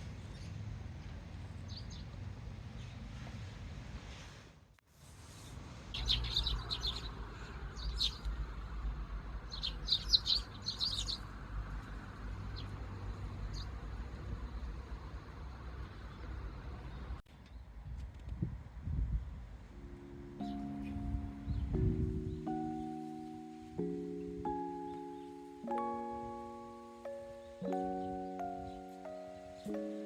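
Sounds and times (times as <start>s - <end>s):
parakeets chirping: 6.0s - 8.3s, 9.5s - 11.3s.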